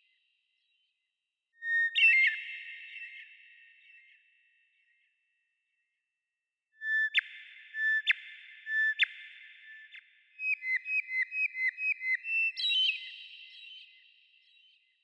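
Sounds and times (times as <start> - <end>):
songbird whistling and trilling: 1.6 - 4.0, 6.8 - 14.9.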